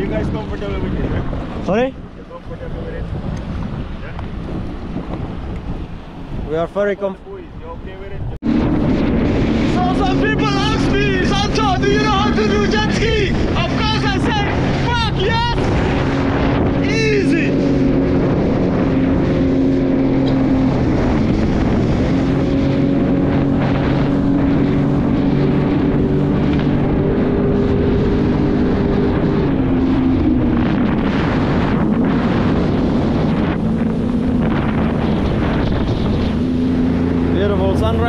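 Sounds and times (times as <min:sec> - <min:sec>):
jet ski engine running: 0:00.0 - 0:38.0
wind buffeting microphone: 0:00.0 - 0:38.0.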